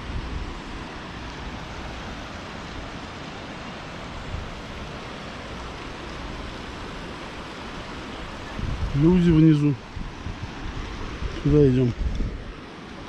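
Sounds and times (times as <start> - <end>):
fast river rushing: 0.0 - 13.0.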